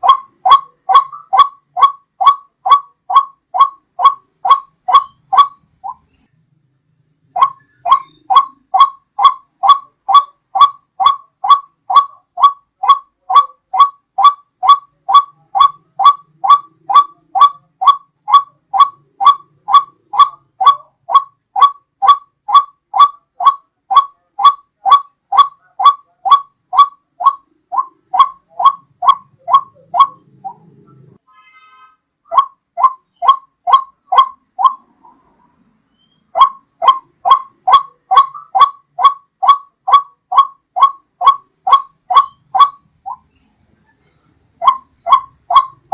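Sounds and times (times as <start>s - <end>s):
bird calling rhythmically: 0.0s - 6.4s, 7.2s - 31.2s, 32.2s - 45.9s.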